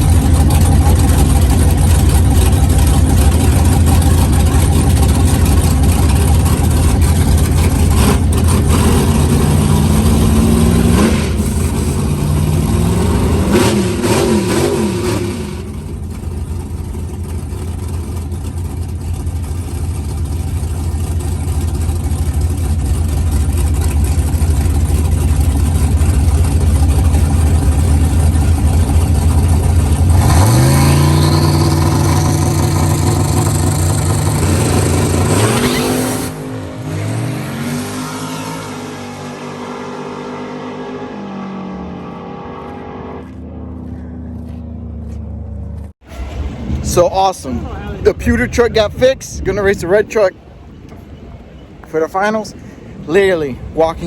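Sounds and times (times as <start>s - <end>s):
low engine drone: 0.0s - 54.0s
truck engine revving: 0.0s - 54.0s.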